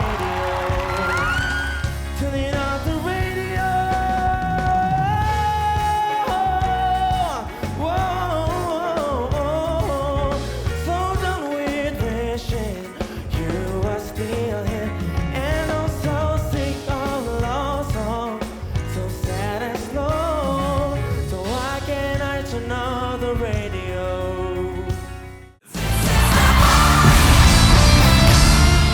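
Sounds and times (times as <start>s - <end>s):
band with steady bass: 0.0s - 28.9s
person singing with vibrato: 0.0s - 28.9s.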